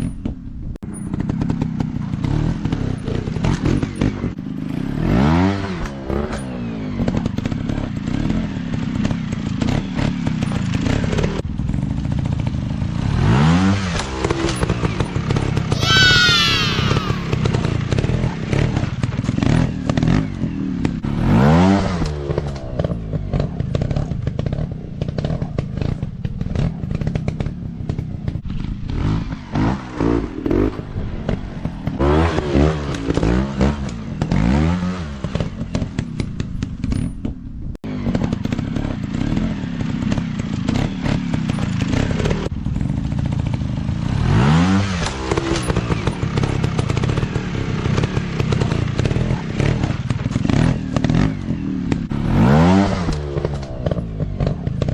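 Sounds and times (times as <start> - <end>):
dirt bike engines revving: 13.2 - 22.1.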